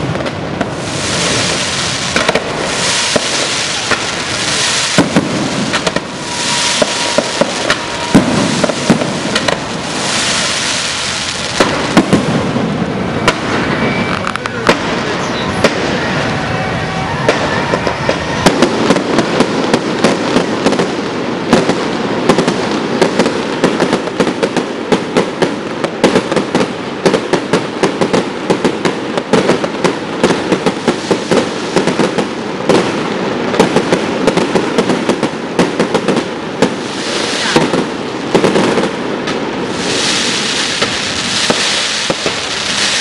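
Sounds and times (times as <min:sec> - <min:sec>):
steady rushing noise: 0:00.0 - 0:27.0
fireworks crackling bangs: 0:00.0 - 0:43.0.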